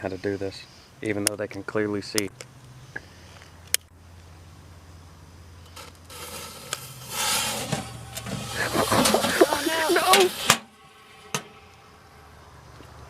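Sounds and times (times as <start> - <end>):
smoke firework hissing: 5.6 - 12.6
firework fuse sizzling: 5.6 - 12.9
excited voices: 8.6 - 10.5.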